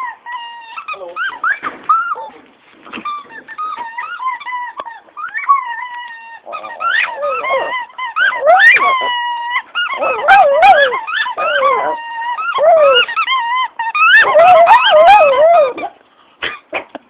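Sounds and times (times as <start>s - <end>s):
dog yodeling: 3.0s - 16.0s.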